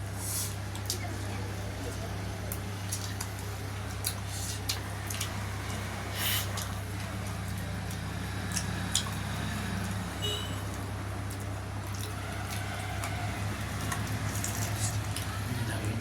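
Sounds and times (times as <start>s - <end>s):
chewing smacks and clicks: 2.5s - 5.8s, 6.4s - 10.1s, 10.7s - 16.0s.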